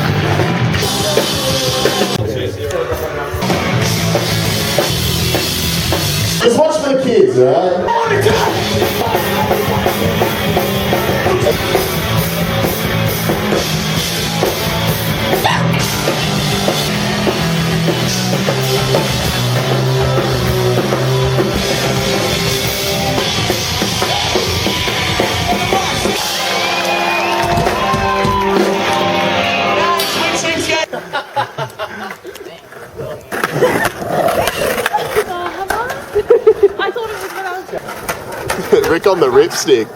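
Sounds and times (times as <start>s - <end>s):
drum kit: 0.0s - 6.6s, 8.1s - 30.8s
loud punk rock music: 0.0s - 30.9s.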